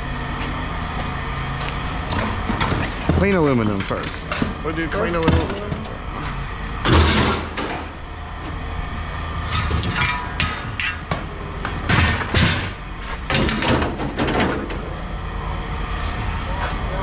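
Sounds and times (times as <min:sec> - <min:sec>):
scrap aluminum clattering: 0:09.5 - 0:14.8.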